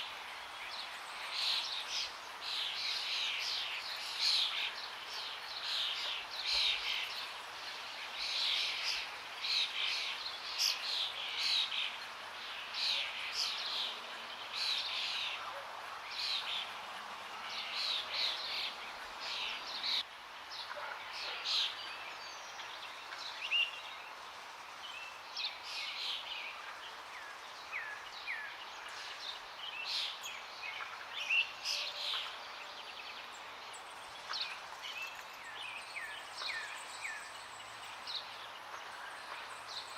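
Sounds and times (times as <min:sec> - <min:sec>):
flowing water: 0:00.0 - 0:39.9
birds chirping and singing: 0:24.9 - 0:39.9.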